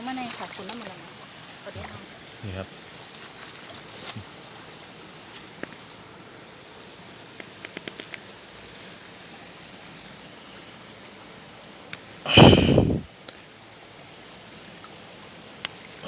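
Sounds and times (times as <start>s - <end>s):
flowing water hiss: 0.0s - 16.0s.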